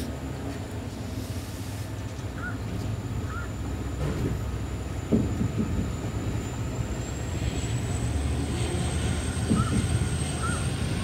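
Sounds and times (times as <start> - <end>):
train wheels rumbling on rail: 0.0 - 11.0
track knock: 4.0 - 6.2.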